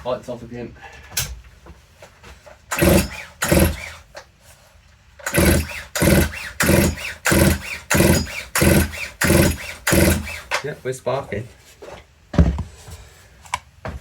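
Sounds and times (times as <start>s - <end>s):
chainsaw pull-starter whirring: 2.7s - 4.1s, 5.2s - 10.7s.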